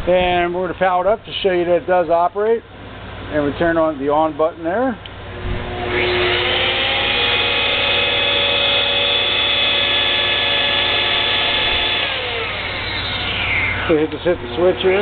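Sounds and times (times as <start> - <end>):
band saw motor whining: 5.1 - 15.0.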